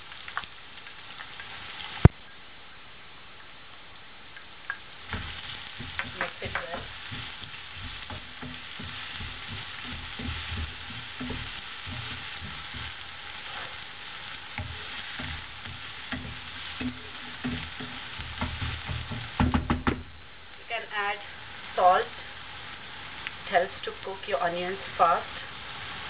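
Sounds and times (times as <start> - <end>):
onions sizzling in hot oil: 0.0 - 26.0
wooden spatula scraping pan: 5.1 - 19.6.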